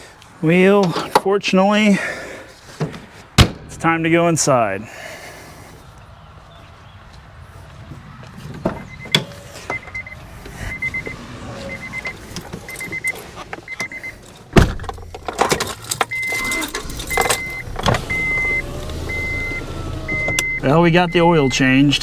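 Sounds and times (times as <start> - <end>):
car door shutting: 8.6 - 21.9
car warning chime beeping: 8.8 - 14.4, 15.0 - 22.0.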